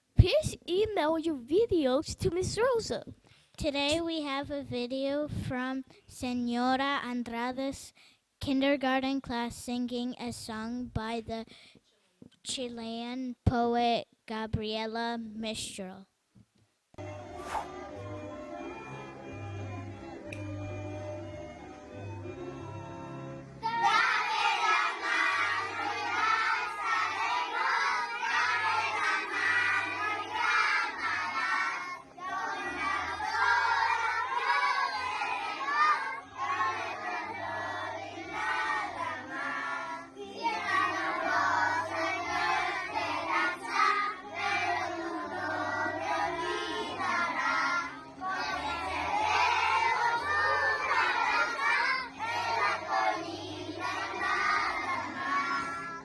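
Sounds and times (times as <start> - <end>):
children singing in unison: 23.6 - 56.0.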